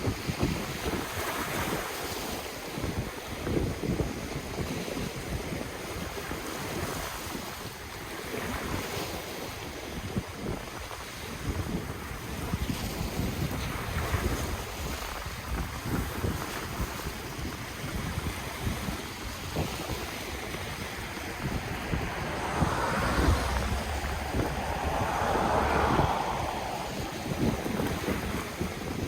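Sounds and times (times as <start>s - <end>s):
wind gusting on microphone: 16.0s - 29.0s
ocean waves breaking on shore: 17.2s - 29.0s.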